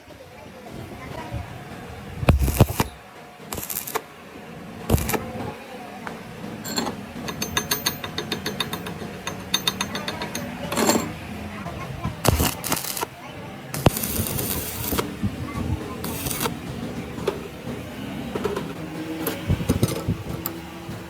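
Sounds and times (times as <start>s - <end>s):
sharp metallic clicks: 12.2s - 13.1s.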